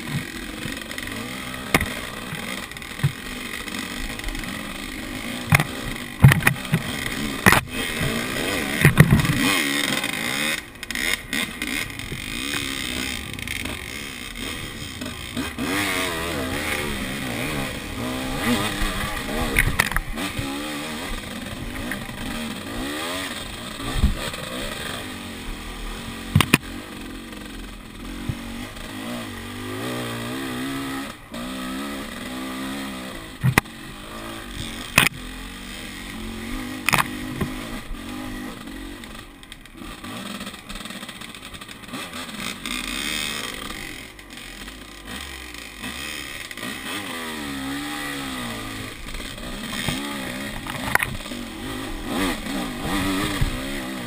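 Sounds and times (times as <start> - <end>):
knocks and clatter from riding: 0.0 - 3.3, 5.3 - 10.1, 49.1 - 51.4
dirt bike engine revving: 0.0 - 54.0.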